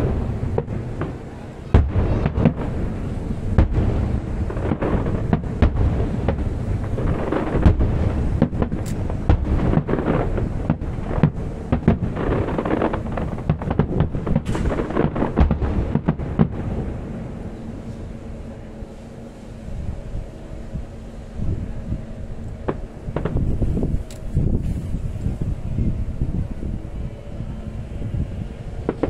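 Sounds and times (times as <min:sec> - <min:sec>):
fireworks cracks and booms: 0:00.0 - 0:18.1, 0:22.6 - 0:25.4, 0:28.7 - 0:29.0
continuous low rumble: 0:00.0 - 0:29.0.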